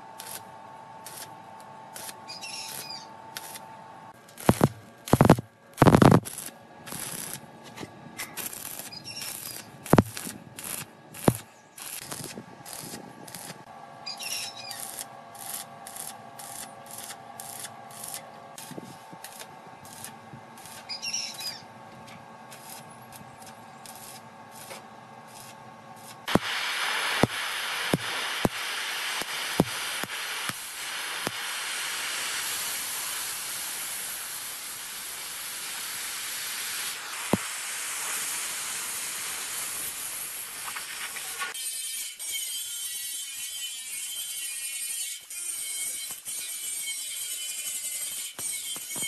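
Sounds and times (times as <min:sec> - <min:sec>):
steady spraying hiss: 0:26.3 - 0:41.4.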